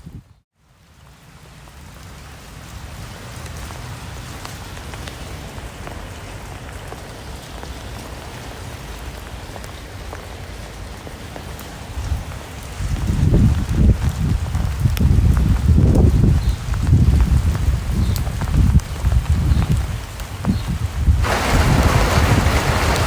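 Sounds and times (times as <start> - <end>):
raindrops ticking on a surface: 0.6 - 23.0
steady rain: 0.6 - 23.0.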